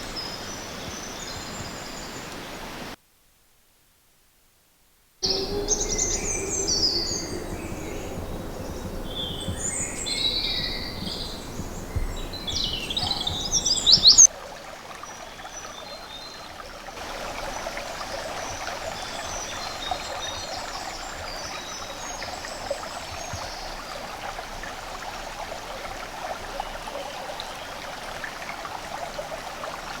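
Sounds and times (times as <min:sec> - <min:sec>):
woodland birds singing: 0:00.0 - 0:02.9, 0:05.2 - 0:14.3, 0:15.1 - 0:24.4
steady rushing noise: 0:05.2 - 0:14.2
distant bird calls: 0:05.2 - 0:14.3.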